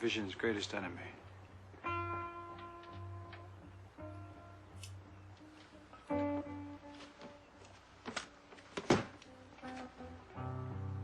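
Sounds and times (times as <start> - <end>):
plucked guitar notes: 1.8 - 7.6, 9.2 - 11.0.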